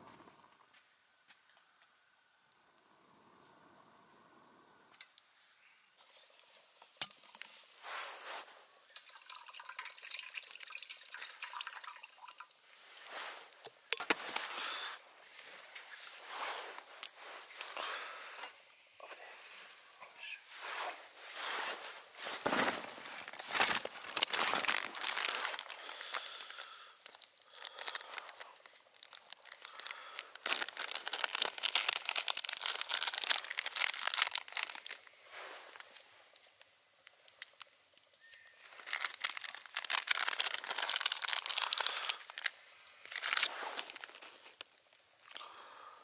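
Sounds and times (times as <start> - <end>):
crinkling handling noise: 6.0 - 9.2, 12.6 - 45.4.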